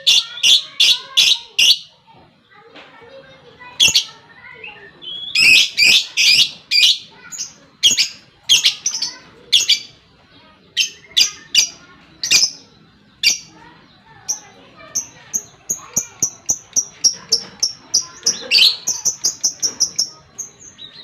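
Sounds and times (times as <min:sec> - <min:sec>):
lovebird chirping: 0:10.7 - 0:21.0.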